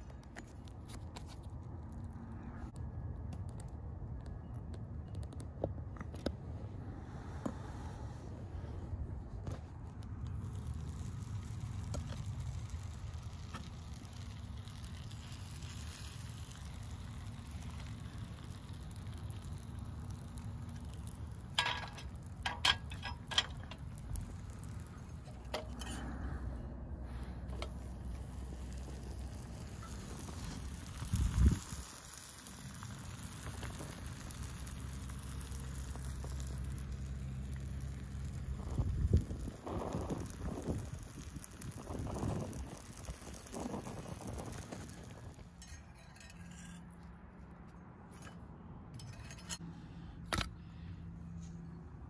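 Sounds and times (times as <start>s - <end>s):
wood fire crackling: 0.0s - 6.3s, 8.6s - 46.8s
steady low rumble: 5.8s - 47.6s
sandwich sizzling in a skillet: 10.4s - 25.2s, 27.7s - 45.7s.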